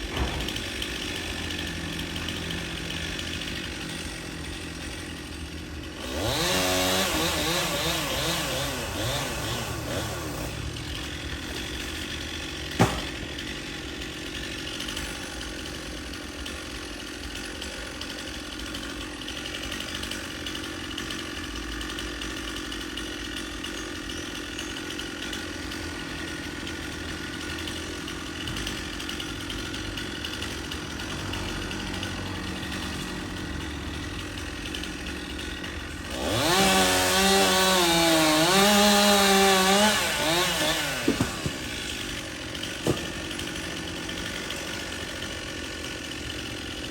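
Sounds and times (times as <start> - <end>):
chainsaw idling and revving: 0.0 - 46.9
sharp knock: 12.8 - 13.2.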